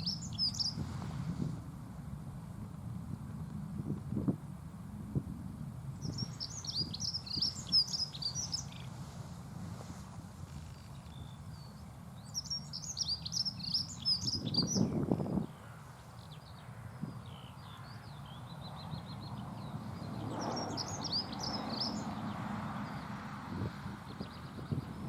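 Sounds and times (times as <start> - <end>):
bird warbling song: 0.0 - 0.8, 6.0 - 9.0, 10.6 - 23.1.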